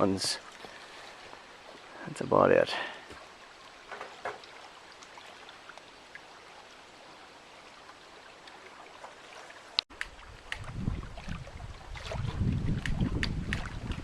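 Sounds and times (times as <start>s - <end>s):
lake water lapping: 0.0s - 14.0s.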